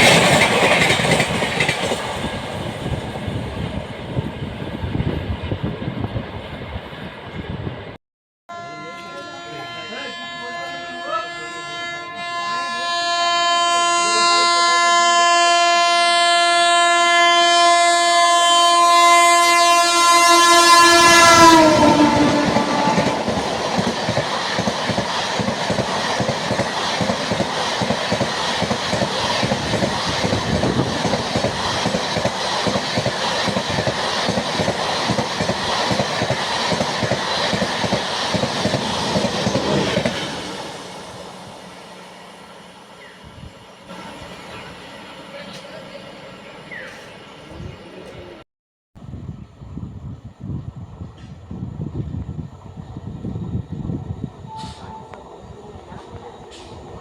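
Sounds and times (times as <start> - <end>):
train wheels clattering: 0.0 - 3.2, 21.4 - 41.0
train horn: 8.5 - 24.0, 54.4 - 55.2.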